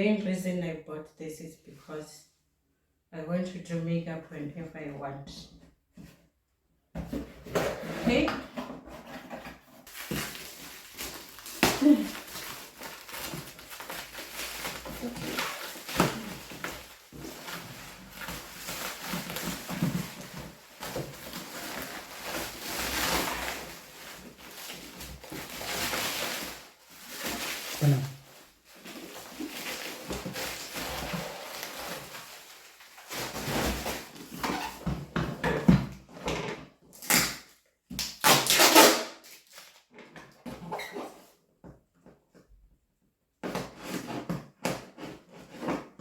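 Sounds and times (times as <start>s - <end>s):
rustling and handling noises: 7.0s - 35.8s.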